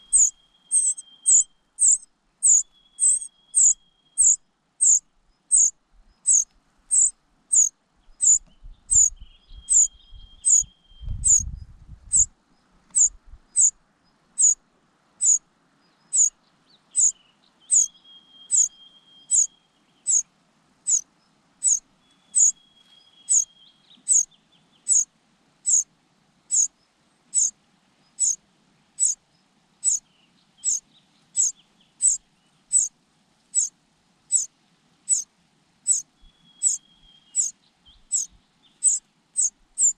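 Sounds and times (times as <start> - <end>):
chick begging calls: 0.0 - 5.7, 6.3 - 9.1, 38.1 - 39.9.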